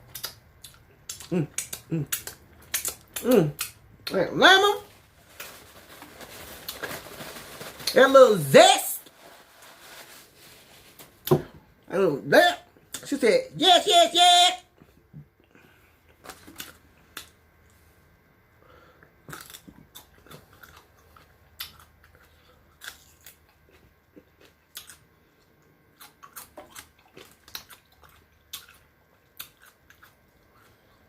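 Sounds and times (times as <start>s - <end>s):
crunching chicken wings: 5.0s - 8.0s, 19.0s - 31.0s.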